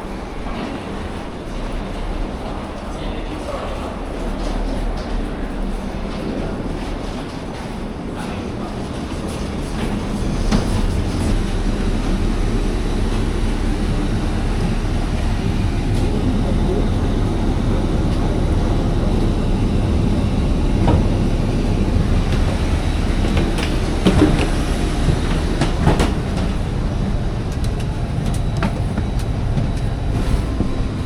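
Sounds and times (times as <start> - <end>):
vehicle rumbling: 9.3 - 31.0.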